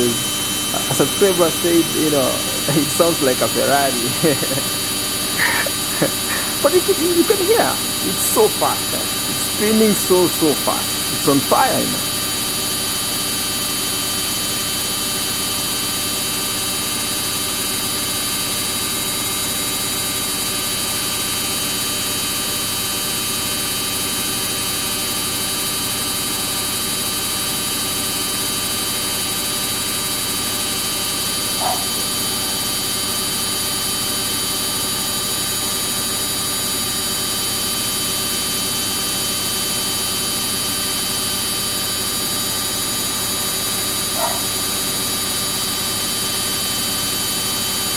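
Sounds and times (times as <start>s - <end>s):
washing machine spinning: 0.0s - 47.9s.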